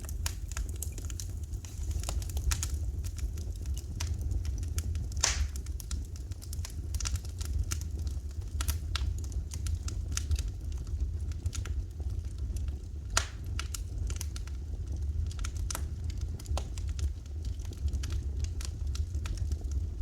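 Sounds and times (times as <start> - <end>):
wood fire crackling: 0.0 - 20.0
loud pop: 5.2 - 5.6.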